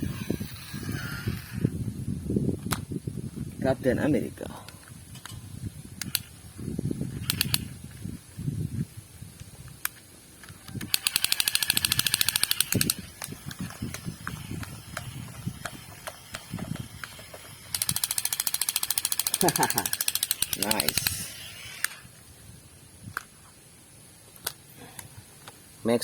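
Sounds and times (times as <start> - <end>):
toy gun handling clicks: 6.0 - 6.3, 7.2 - 7.7, 9.8 - 22.1
toy gun rattling bursts: 6.0 - 6.3, 7.2 - 7.7, 10.8 - 22.1.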